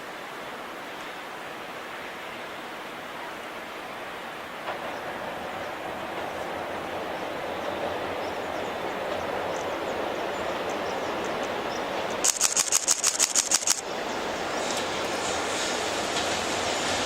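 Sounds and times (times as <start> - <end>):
train rail rumble: 4.4 - 17.0
sharp high-pitched clicks: 12.2 - 13.8.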